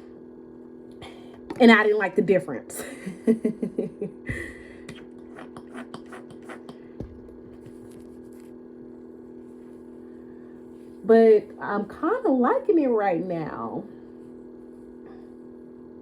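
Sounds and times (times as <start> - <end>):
low electrical hum: 0.0 - 16.0
hair being combed: 4.9 - 6.8.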